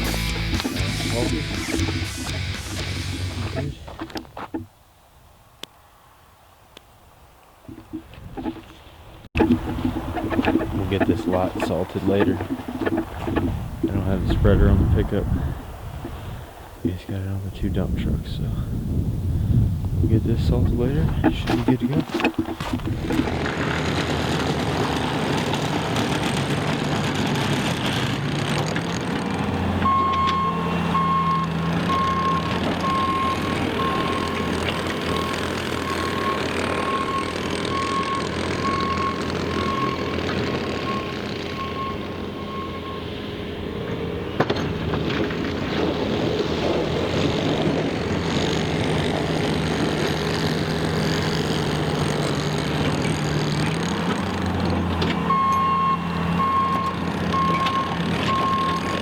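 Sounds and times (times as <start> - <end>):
truck engine running: 0.0 - 4.8, 7.7 - 59.0
reversing alarm beeping: 29.8 - 43.8, 55.0 - 59.0.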